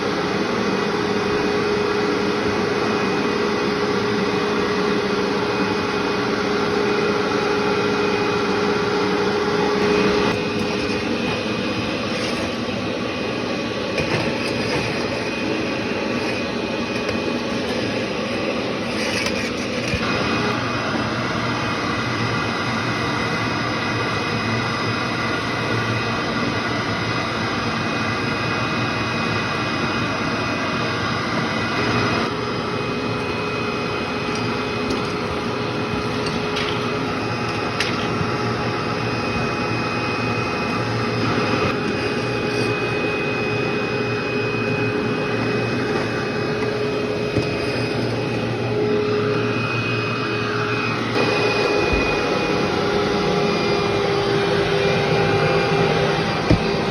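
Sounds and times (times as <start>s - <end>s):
vacuum cleaner running: 0.0s - 56.9s.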